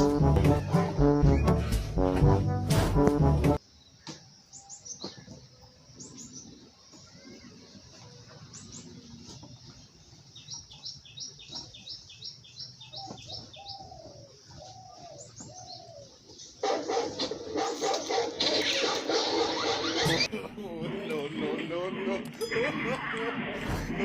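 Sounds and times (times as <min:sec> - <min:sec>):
small birds chirping: 0:03.6 - 0:20.3.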